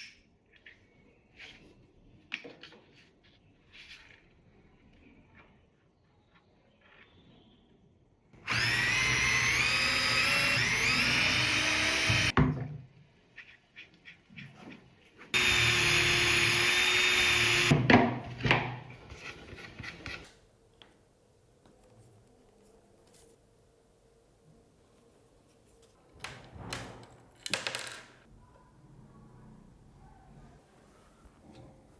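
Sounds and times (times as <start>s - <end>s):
power drill whining: 8.4s - 12.3s, 15.4s - 17.8s.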